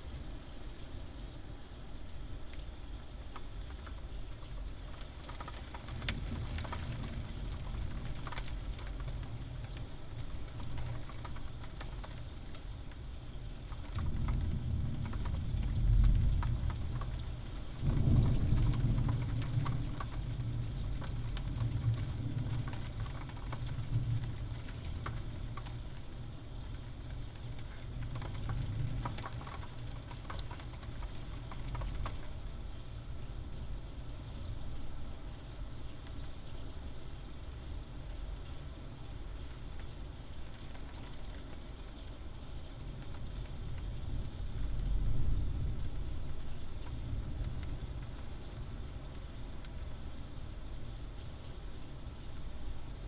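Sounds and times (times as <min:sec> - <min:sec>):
rain falling: 0:00.0 - 0:53.0
thunder rumble: 0:13.6 - 0:26.1, 0:42.8 - 0:49.2.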